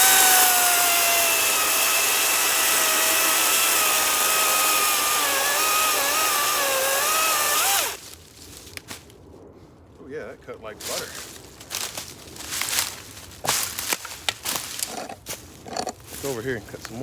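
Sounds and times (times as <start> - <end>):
electric chainsaw cutting log: 0.0 - 8.0.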